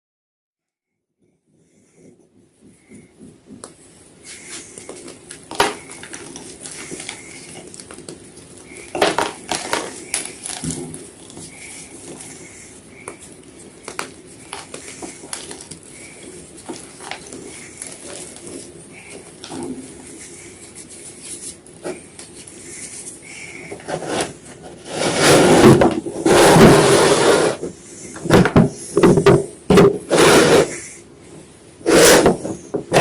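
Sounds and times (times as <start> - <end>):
chalk crunching: 4.2 - 27.7.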